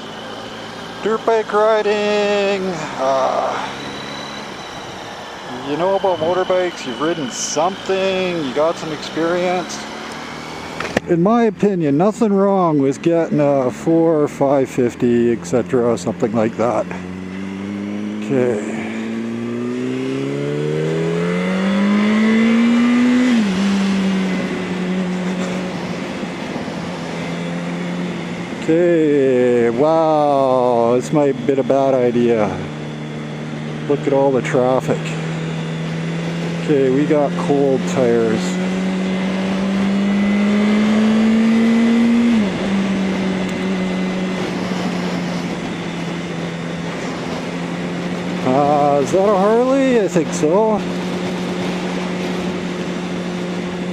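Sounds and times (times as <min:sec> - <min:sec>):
motorcycle engine revving: 0:00.0 - 0:53.9
wind rush on microphone: 0:22.4 - 0:29.6, 0:38.2 - 0:53.9.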